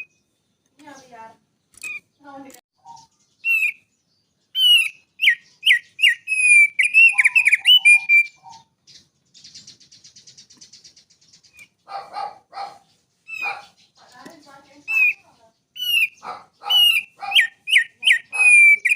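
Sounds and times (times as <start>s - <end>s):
harsh low bird calls: 0.0s - 18.9s
high buzzy bird trill: 0.0s - 18.9s
songbird whistled notes: 2.8s - 11.8s, 13.2s - 18.9s.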